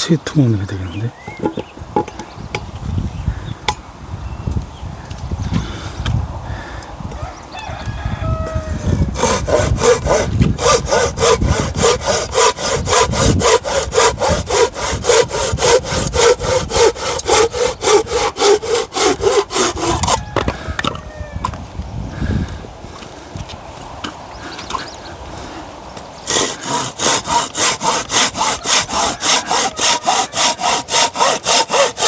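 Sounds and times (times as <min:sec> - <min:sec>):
hand saw cutting log: 0:08.8 - 0:20.2, 0:26.3 - 0:32.0.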